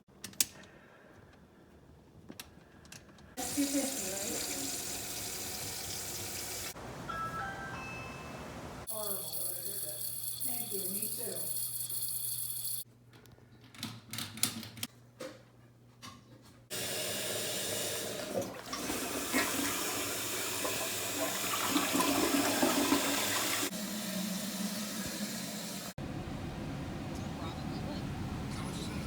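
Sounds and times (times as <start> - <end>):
toilet flushing water rush: 3.4 - 6.8, 16.7 - 26.0.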